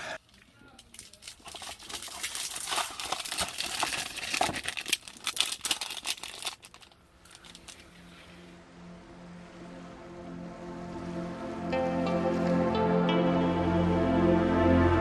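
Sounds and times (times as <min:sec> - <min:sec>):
thin material crinkling: 0:00.6 - 0:08.5
soft music: 0:08.6 - 0:15.0.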